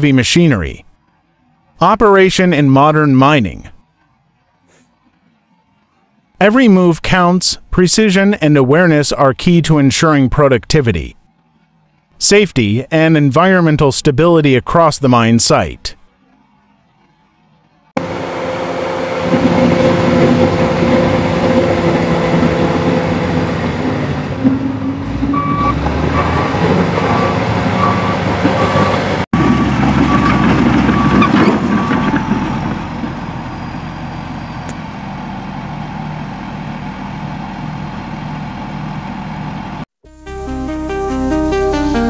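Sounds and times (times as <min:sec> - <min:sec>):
bulldozer diesel engine running: 0:18.0 - 0:41.9
reversing alarm beeping: 0:25.3 - 0:32.6.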